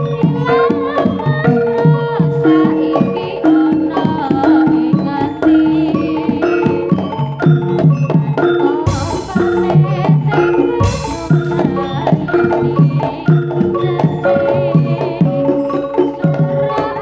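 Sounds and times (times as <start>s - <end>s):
metallophone tones: 8.6s - 14.7s
wavering melodic line: 8.9s - 10.1s, 10.8s - 14.0s
hand drum strokes: 8.9s - 13.2s.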